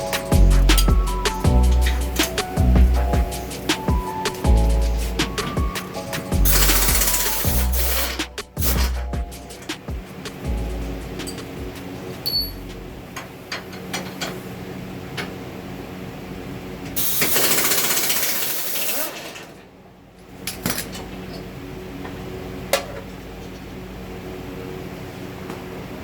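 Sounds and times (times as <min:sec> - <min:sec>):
steady hum: 0:00.0 - 0:13.5
loud hissing burst: 0:06.4 - 0:09.0
metal tool clicks and clinks: 0:12.2 - 0:12.8.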